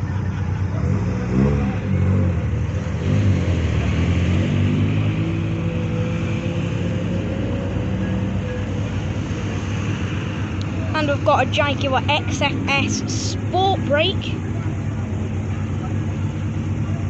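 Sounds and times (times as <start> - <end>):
car engine pulling away: 0.0 - 12.9.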